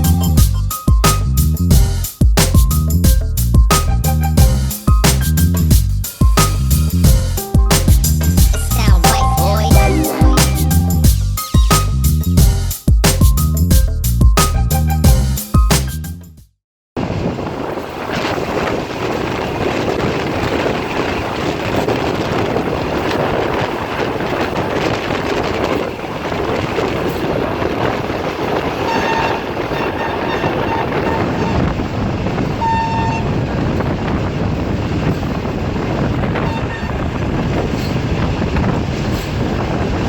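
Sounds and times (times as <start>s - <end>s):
train rumbling at speed: 0.0s - 11.4s, 17.1s - 40.0s
train horn toots: 28.8s - 31.8s, 32.5s - 33.5s, 36.4s - 37.1s.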